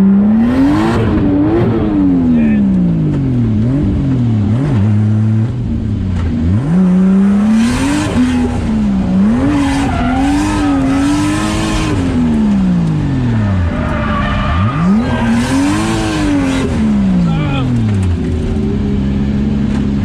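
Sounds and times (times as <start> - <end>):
car engine revving hard: 0.0 - 2.6, 6.4 - 18.7
tires squealing: 7.9 - 18.0.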